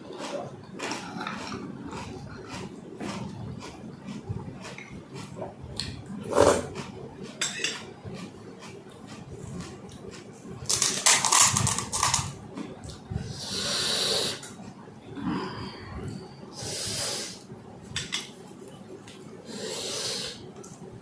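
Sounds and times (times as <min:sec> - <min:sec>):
crunching of crisp shells: 0:00.2 - 0:05.4, 0:06.8 - 0:13.0.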